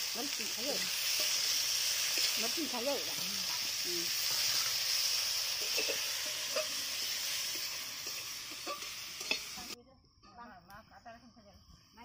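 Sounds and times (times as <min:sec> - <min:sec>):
vegetables sizzling in hot oil: 0:00.0 - 0:09.8
metal clink: 0:08.0 - 0:09.6.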